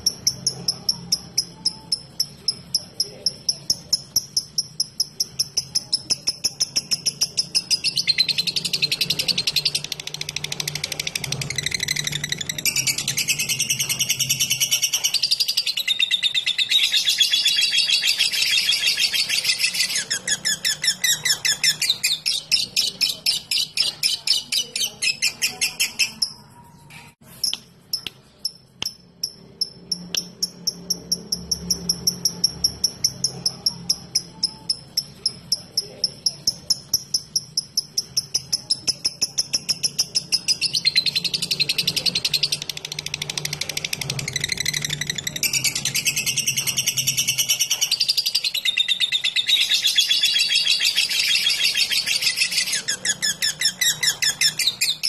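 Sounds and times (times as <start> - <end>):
lovebird chattering: 0.0 - 26.6, 27.2 - 55.0
bird sharp ticking notes: 27.4 - 55.0.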